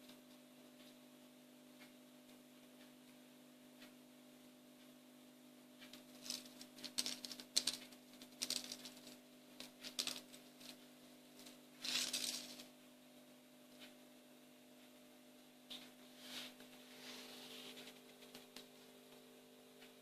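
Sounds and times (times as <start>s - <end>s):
fidget spinner clicking and rattling: 5.8s - 12.8s.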